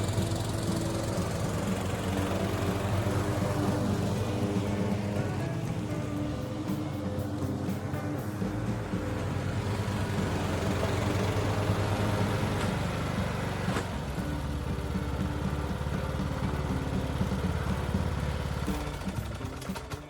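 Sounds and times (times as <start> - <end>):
ride-on lawn mower engine: 0.0 - 20.0.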